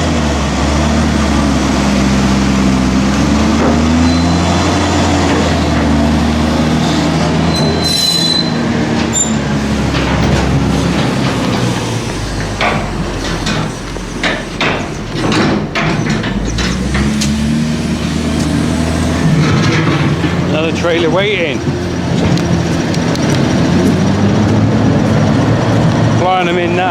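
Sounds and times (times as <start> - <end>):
heavy farm machinery running: 0.0 - 26.9
high squeal: 3.4 - 23.8
metallic clanks and knocks: 3.5 - 24.1.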